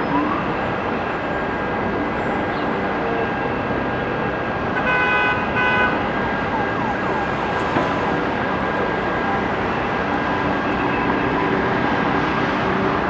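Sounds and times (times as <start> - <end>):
city traffic roar: 0.0 - 13.0
vehicle horn blasts: 4.8 - 6.1.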